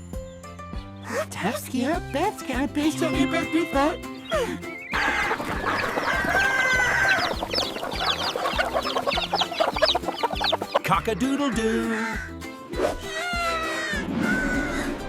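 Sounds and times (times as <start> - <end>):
background music: 0.0 - 15.0
cartoon chickens clucking: 2.9 - 14.9
rooster crowing: 5.0 - 7.8.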